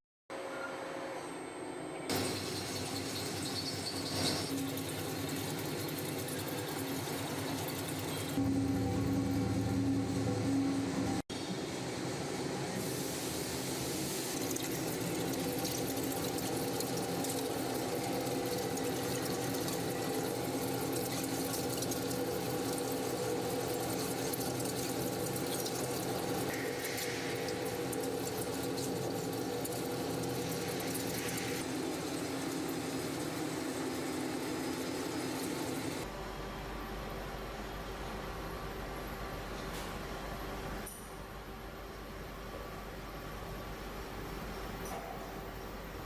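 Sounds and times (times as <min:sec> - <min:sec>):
machinery humming: 0:00.5 - 0:44.8.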